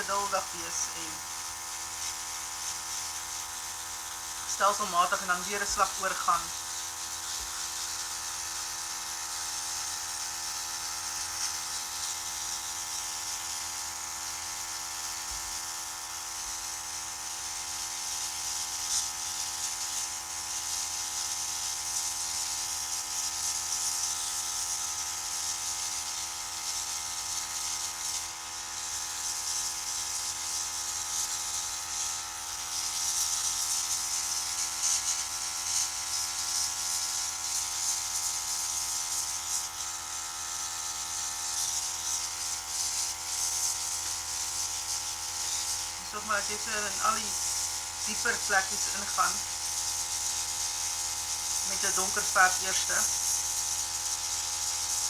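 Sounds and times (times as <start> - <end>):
compressor motor humming: 0.0 - 1.4, 4.4 - 6.7, 45.8 - 49.6.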